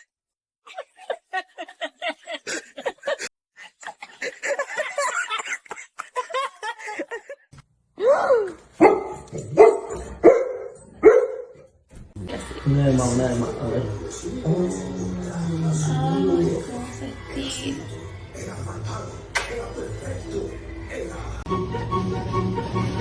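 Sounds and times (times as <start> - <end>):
dog barking: 8.8 - 11.7.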